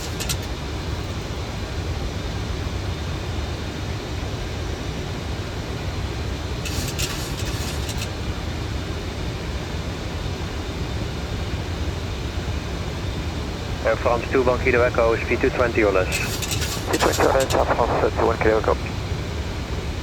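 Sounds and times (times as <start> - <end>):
airflow and engine noise: 0.0 - 20.0
high-pitched crackle: 15.3 - 18.8.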